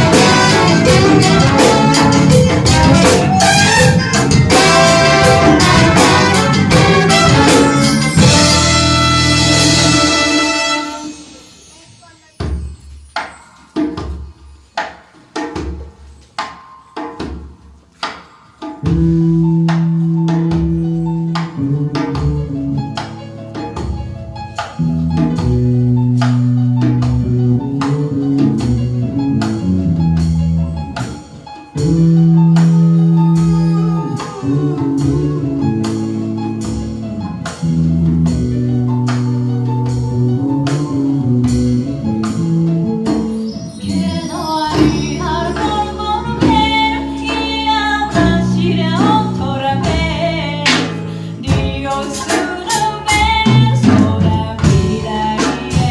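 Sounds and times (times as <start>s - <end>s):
bass line: 0.0s - 11.4s, 18.9s - 55.9s
percussion beat: 0.0s - 55.9s.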